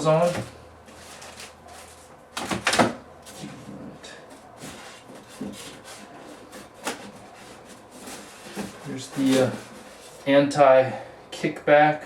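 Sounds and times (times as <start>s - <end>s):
packaging rustling: 4.6s - 10.3s.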